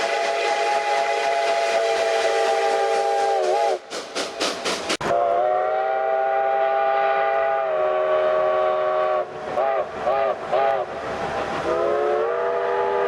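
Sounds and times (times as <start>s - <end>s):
steam locomotive chime whistle: 0.0s - 4.0s, 5.1s - 10.9s, 11.6s - 13.0s
rapid hissing steam puffs: 0.0s - 5.0s, 8.0s - 13.0s.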